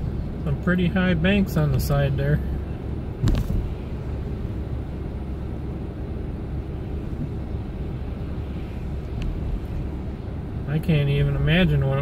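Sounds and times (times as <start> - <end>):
road and engine noise in cab: 0.0 - 12.0.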